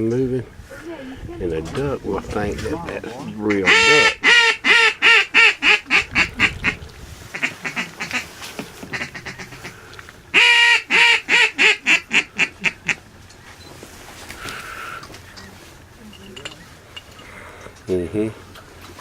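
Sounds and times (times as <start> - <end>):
duck call quacks: 3.6 - 8.3, 8.9 - 13.0.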